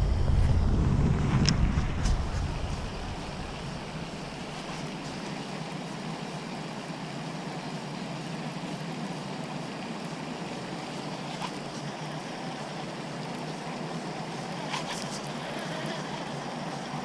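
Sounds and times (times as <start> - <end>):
outdoor rushing noise: 0.0 - 5.4.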